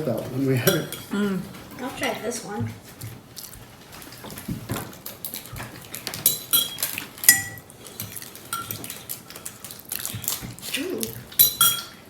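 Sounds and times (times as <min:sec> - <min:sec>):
cutlery clinking against dishes: 0:00.0 - 0:02.2, 0:04.8 - 0:09.2, 0:10.2 - 0:12.0.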